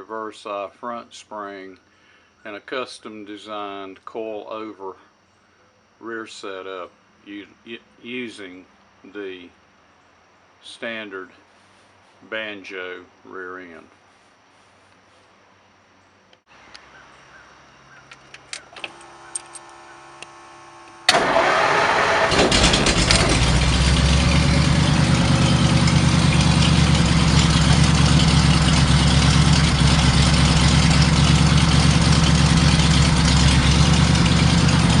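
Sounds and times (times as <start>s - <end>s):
engine starting and idling: 18.5s - 35.0s.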